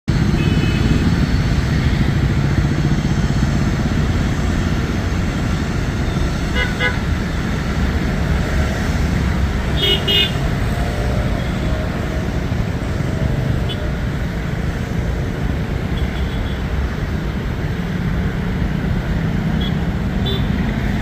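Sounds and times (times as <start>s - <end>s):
road traffic rumble: 0.1s - 21.0s
vehicle horn tooting: 0.4s - 1.0s, 9.8s - 10.4s.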